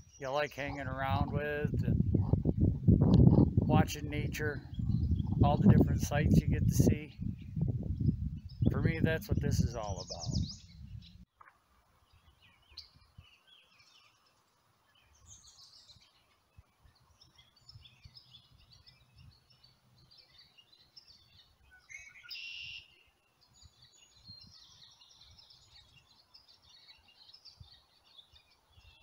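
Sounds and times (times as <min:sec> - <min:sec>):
small birds chirping and twittering: 0:00.0 - 0:29.0.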